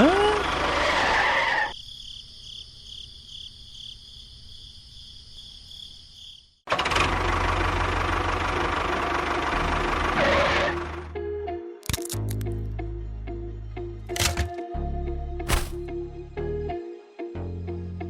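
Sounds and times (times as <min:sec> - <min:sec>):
small motor humming: 0:00.0 - 0:01.0.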